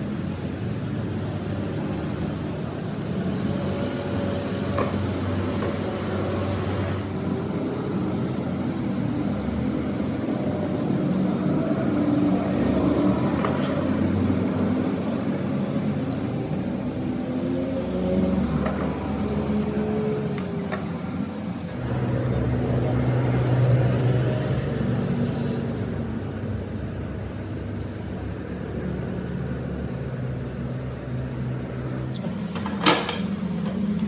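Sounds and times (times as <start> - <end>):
machine motor humming: 7.0 - 21.9.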